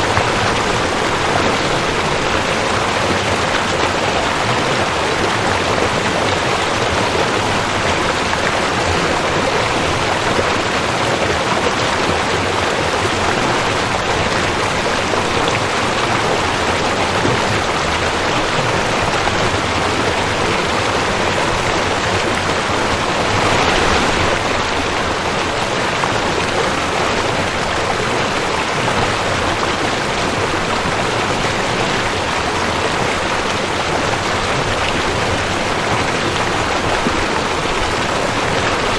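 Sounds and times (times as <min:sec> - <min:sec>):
creek water rushing: 0:00.0 - 0:38.9.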